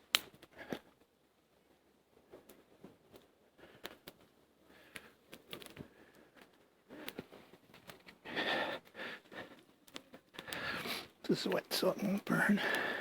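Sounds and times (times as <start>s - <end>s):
campfire crackling: 0.0s - 13.0s
person breathing: 8.2s - 9.7s, 10.3s - 11.2s, 12.6s - 13.0s.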